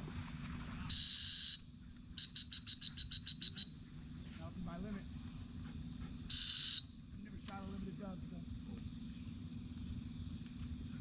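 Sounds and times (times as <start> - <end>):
faint insect buzz: 0.0 - 11.0
dog whistle blasts and toots: 0.9 - 3.9, 6.3 - 7.1.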